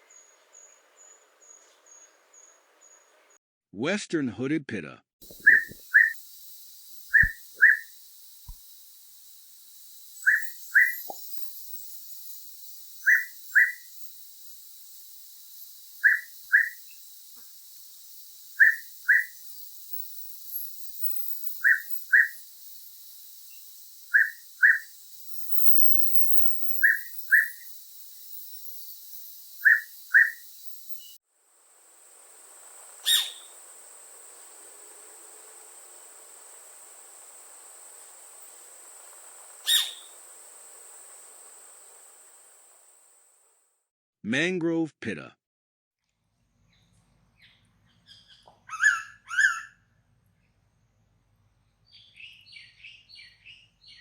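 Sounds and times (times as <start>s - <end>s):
bird double whistle call: 5.3s - 6.2s, 6.9s - 8.6s, 10.2s - 14.1s, 15.9s - 17.0s, 18.5s - 19.5s, 20.5s - 22.4s, 24.1s - 27.7s, 29.6s - 30.4s, 33.0s - 33.5s, 39.6s - 40.1s
sharp click: 7.1s - 7.4s.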